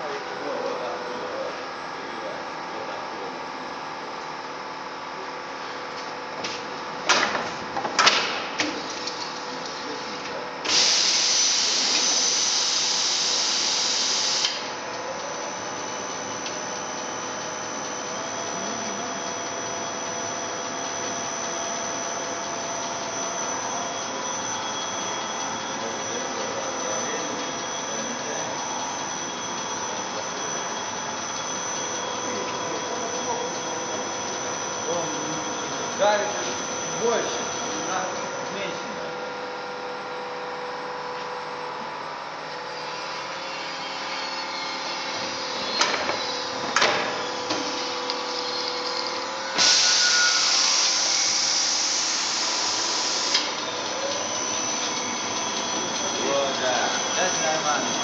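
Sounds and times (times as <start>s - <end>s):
machine motor hum: 0.0s - 41.0s, 41.6s - 58.0s
loud hiss: 10.7s - 14.5s, 49.6s - 53.4s.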